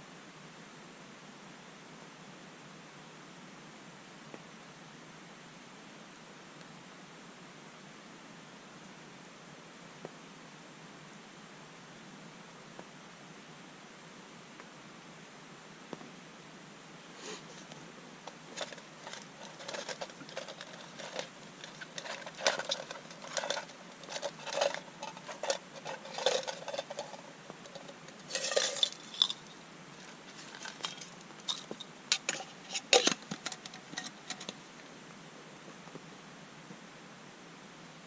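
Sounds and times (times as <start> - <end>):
gear rustling and clicking: 17.5 - 34.6.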